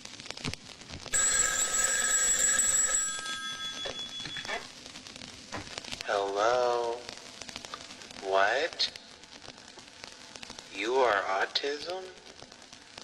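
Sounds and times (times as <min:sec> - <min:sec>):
telephone ringing: 0:01.1 - 0:04.7.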